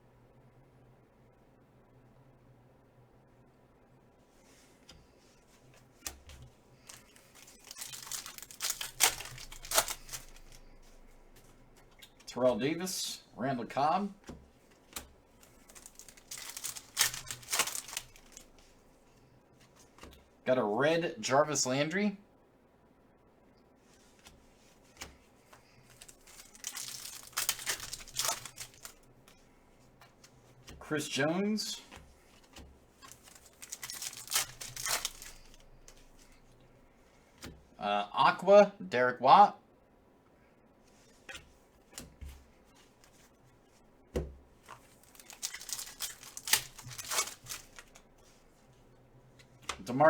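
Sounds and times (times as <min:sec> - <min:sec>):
plastic wrapper tearing and crinkling: 0:06.8 - 0:10.9, 0:15.0 - 0:18.7, 0:25.9 - 0:29.1, 0:32.5 - 0:36.4, 0:44.6 - 0:48.3.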